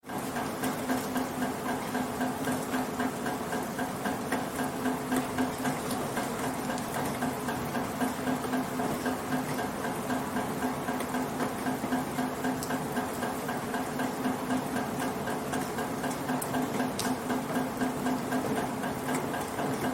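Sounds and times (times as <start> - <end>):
water dripping from a gutter: 0.1 - 19.9
rain falling: 0.2 - 10.0, 14.6 - 19.9.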